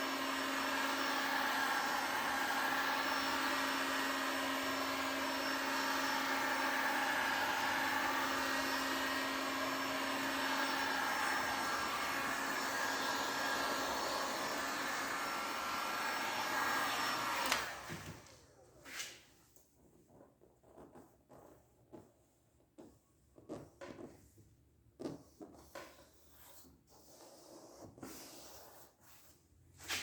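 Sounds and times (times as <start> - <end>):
small electric motor running: 0.0 - 17.9.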